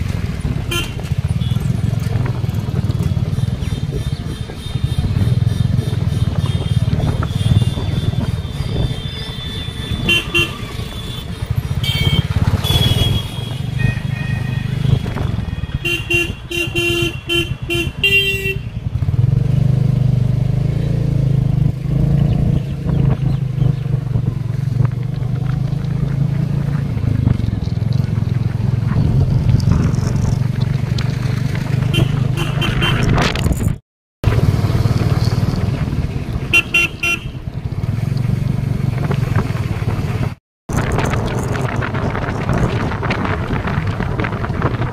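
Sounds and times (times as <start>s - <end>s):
motorcycle engine running: 0.0s - 33.6s, 34.2s - 44.9s
horns honking: 0.6s - 1.7s, 4.1s - 18.9s, 31.9s - 33.2s, 36.4s - 37.5s.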